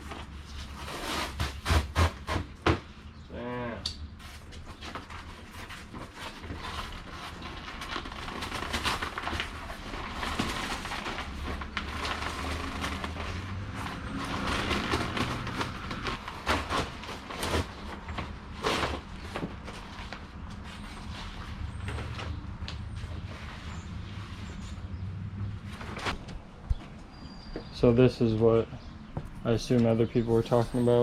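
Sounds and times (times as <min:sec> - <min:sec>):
fabric tearing and scraping off foam: 0:00.7 - 0:02.4.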